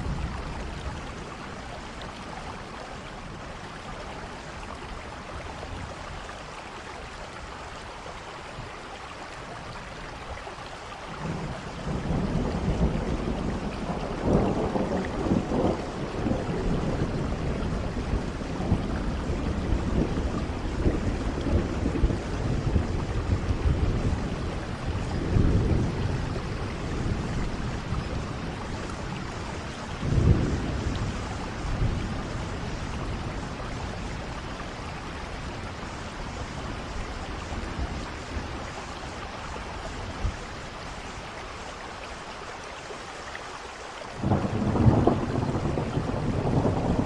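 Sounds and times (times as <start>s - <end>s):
steady rain: 0.0s - 47.0s
thunder rolling: 11.2s - 34.4s, 44.2s - 47.0s.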